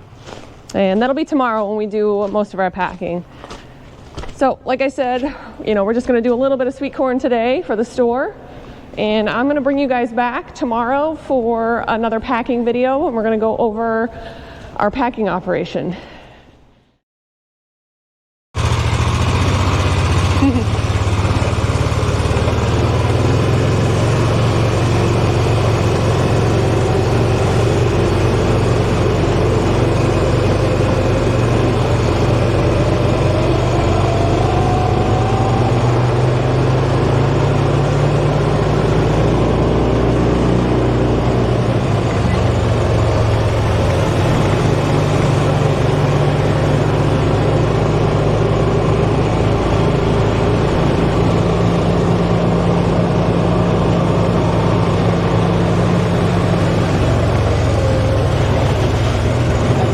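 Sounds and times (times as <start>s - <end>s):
heavy engine running: 18.6s - 59.9s.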